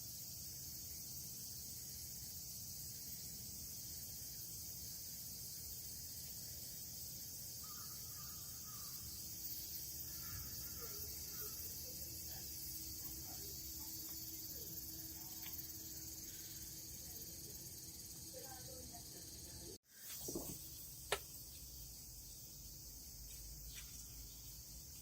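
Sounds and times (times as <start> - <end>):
high-pitched insect chorus: 0.0 - 25.0
faint bird calls: 7.6 - 9.1, 10.0 - 11.9.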